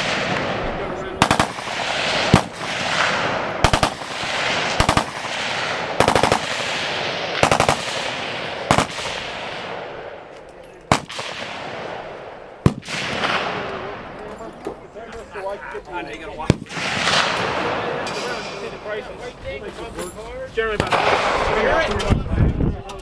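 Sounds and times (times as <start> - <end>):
machine-gun fire with echo: 0.0 - 10.2, 10.9 - 14.1, 16.5 - 18.1, 20.8 - 21.9
single gunshots: 0.0 - 10.2, 10.9 - 14.0, 16.4 - 18.2.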